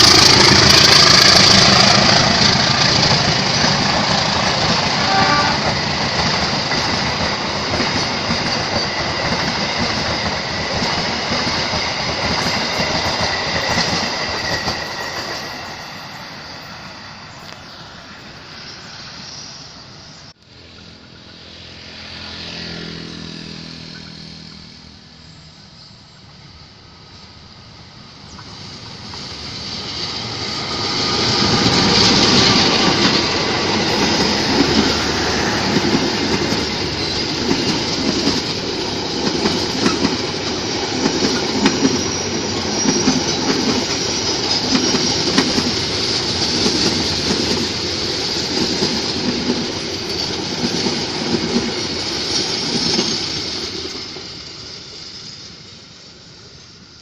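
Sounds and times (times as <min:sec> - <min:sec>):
train wheels clattering over rail joints: 0:00.0 - 0:16.2, 0:28.3 - 0:54.8
high ring of wheels on rail: 0:00.0 - 0:57.0.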